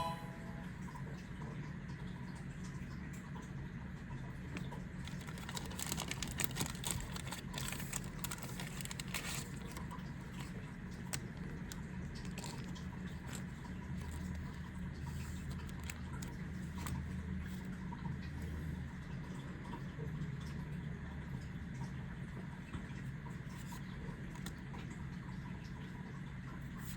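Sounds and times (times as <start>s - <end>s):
foil wrapper crinkling: 4.5s - 17.0s
cards being handled: 5.1s - 14.2s.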